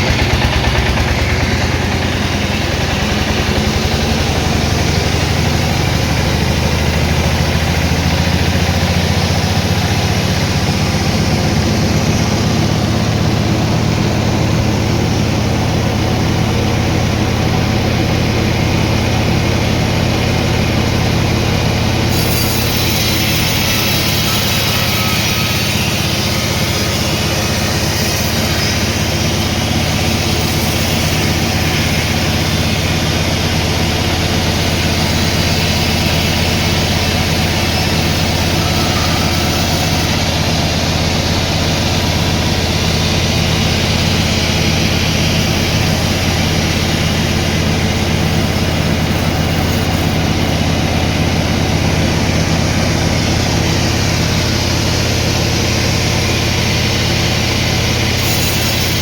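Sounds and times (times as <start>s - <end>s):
sawmill machinery hum: 0.0s - 59.0s
saw cutting hiss: 19.3s - 59.0s.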